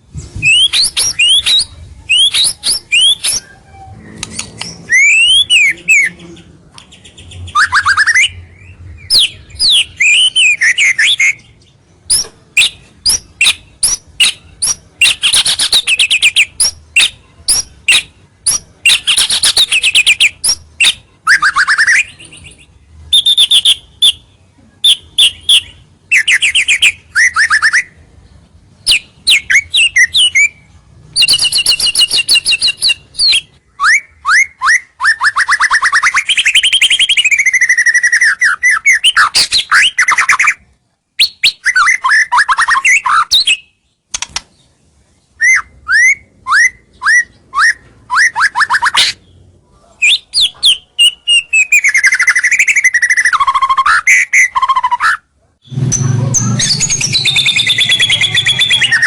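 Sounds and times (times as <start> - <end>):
bird singing trills and whistles: 0.2 - 28.0, 28.8 - 30.6, 31.2 - 40.6, 41.2 - 44.3, 45.4 - 59.0
low hum: 55.6 - 59.0.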